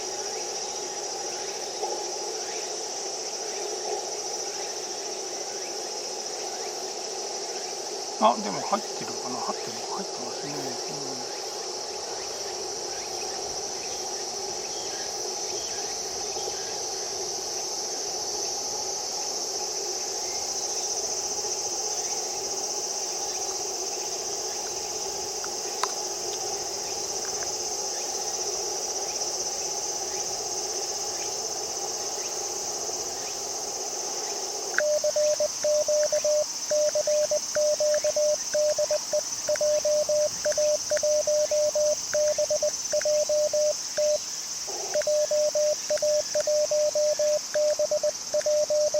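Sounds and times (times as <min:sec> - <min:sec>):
crickets chirring: 0:00.0 - 0:48.9
radio receiver hiss: 0:08.1 - 0:11.6, 0:34.6 - 0:48.9
click: 0:34.7 - 0:34.9, 0:40.5 - 0:41.1
morse code tone: 0:34.8 - 0:44.2, 0:45.0 - 0:48.9.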